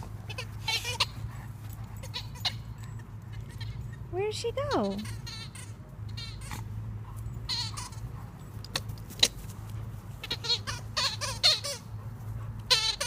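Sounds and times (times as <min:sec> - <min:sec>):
squeaky rubber chicken toy: 0:04.8 - 0:06.6, 0:07.5 - 0:08.0, 0:10.2 - 0:11.8, 0:12.7 - 0:13.0.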